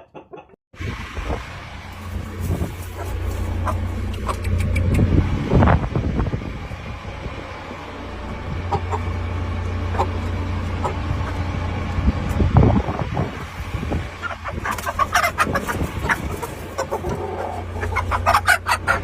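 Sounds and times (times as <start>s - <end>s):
steady low rumble: 0.8s - 19.0s
chickens clucking: 2.1s - 5.8s, 7.4s - 19.0s.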